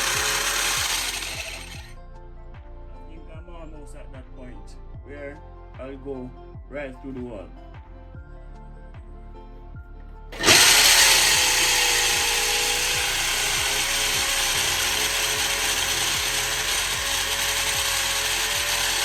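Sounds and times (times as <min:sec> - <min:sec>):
power drill boring through wall: 0:00.0 - 0:01.9, 0:10.4 - 0:19.0.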